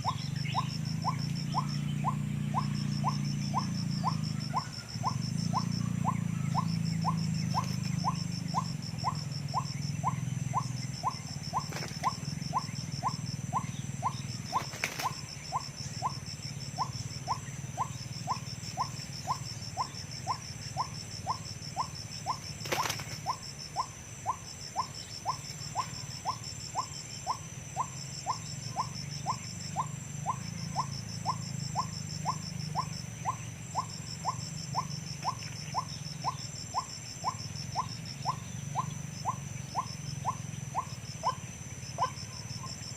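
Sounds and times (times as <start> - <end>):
bird kwak calls: 0.0 - 42.9.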